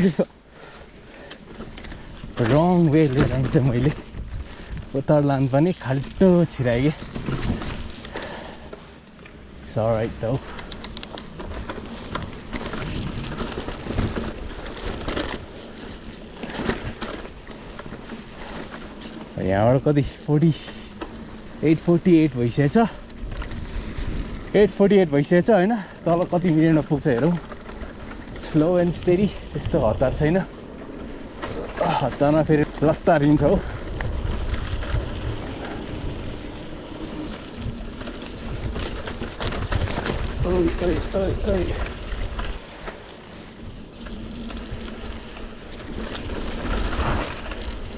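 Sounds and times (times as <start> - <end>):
bike rattling: 0.0 - 47.9
tyres crunching on loose ground: 0.0 - 47.9
scattered clicks: 10.4 - 12.7.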